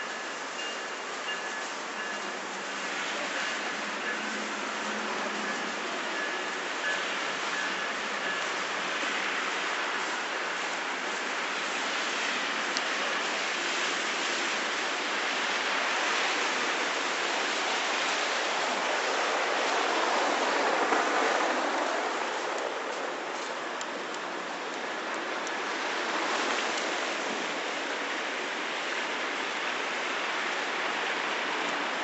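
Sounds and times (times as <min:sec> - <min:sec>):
tyres hissing on wet road: 0:00.0 - 0:32.0.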